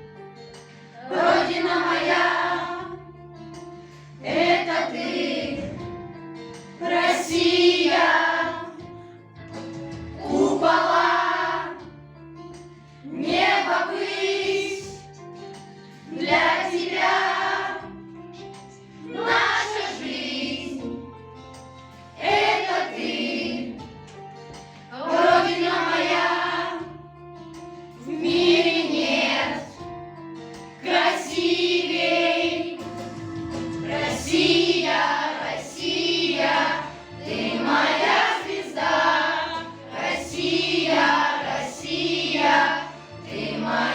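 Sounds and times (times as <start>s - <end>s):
instrumental accompaniment: 0.0s - 43.9s
children's choir singing: 1.0s - 3.0s, 4.2s - 5.9s, 6.8s - 8.9s, 10.2s - 12.0s, 13.1s - 15.0s, 16.1s - 18.0s, 19.0s - 21.0s, 22.2s - 23.8s, 24.9s - 27.0s, 28.0s - 29.8s, 30.8s - 33.0s, 33.6s - 43.9s.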